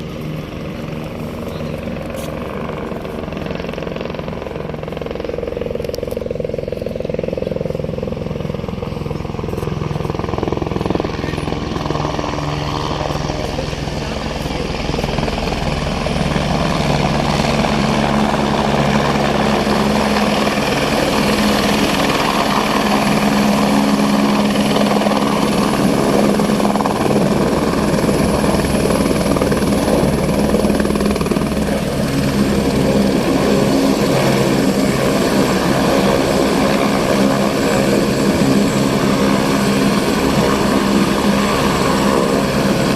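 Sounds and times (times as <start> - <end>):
helicopter engine and rotor: 0.0 - 42.9
high turbine whine: 0.0 - 42.9.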